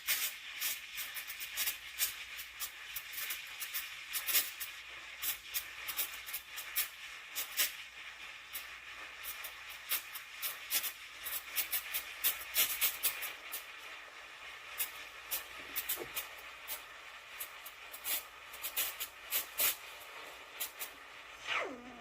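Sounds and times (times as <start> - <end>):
sputtering crackles: 0.0 - 22.0
steam wand hissing: 0.0 - 22.0.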